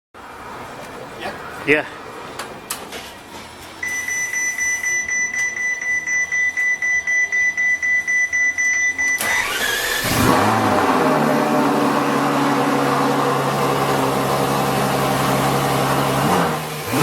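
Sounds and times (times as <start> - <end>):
car engine firing: 9.2 - 17.0
pulsing starter motor whine: 9.2 - 17.0.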